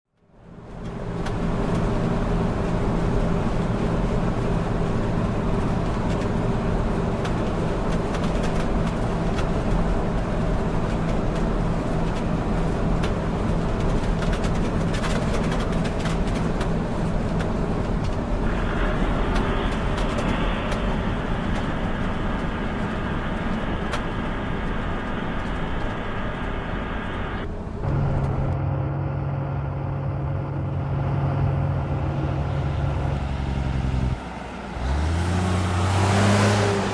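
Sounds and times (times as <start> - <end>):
truck engine drone: 0.2 - 36.9.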